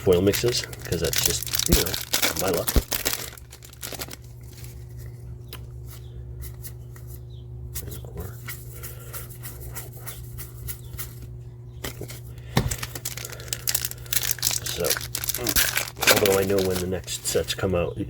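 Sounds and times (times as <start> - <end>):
steady low hum: 0.0 - 18.0
trading cards flipped: 11.9 - 17.0.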